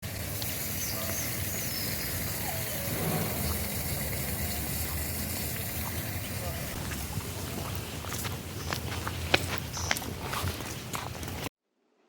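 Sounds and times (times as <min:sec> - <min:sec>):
low rumble: 0:02.4 - 0:06.2.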